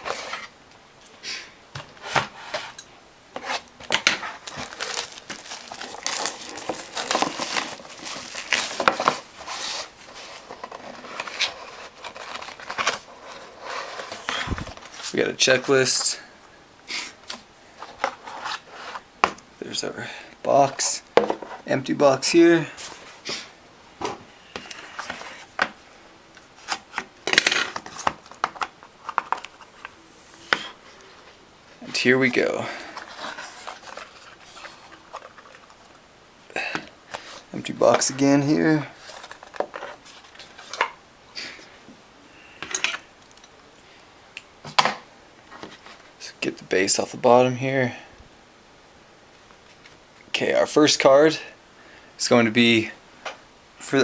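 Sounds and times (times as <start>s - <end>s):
cardboard rustling scrape: 0.0s - 0.5s, 1.9s - 2.8s, 3.4s - 15.2s, 17.8s - 19.1s, 32.8s - 35.9s, 38.9s - 40.8s
plastic wrap tearing and crinkling: 4.0s - 13.1s.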